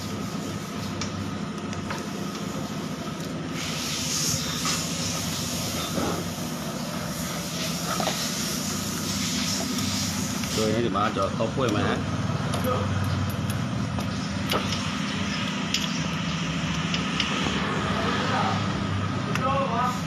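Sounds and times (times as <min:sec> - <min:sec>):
hiss: 0:02.1 - 0:10.9
motorcycle engine idling: 0:04.4 - 0:19.9.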